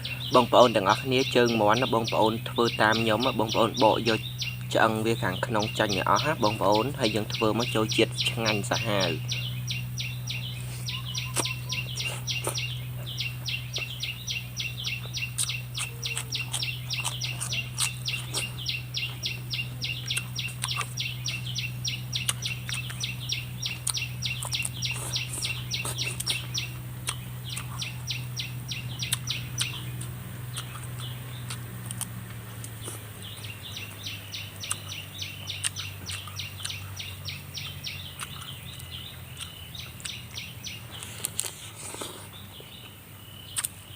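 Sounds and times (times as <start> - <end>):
low hum: 0.0 - 43.4
fast even chirping: 0.0 - 43.9
sharp clicks: 29.0 - 33.0.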